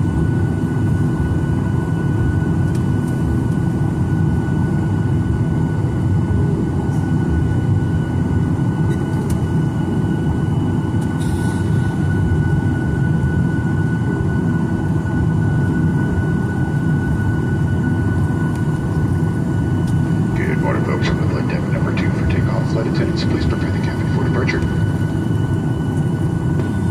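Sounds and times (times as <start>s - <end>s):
airplane cabin rumble: 0.0s - 26.9s
thin steady whine: 6.5s - 26.9s.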